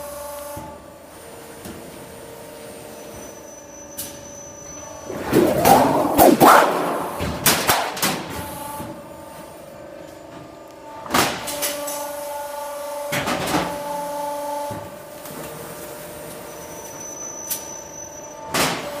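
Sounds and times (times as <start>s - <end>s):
machine hum: 5.0s - 8.1s.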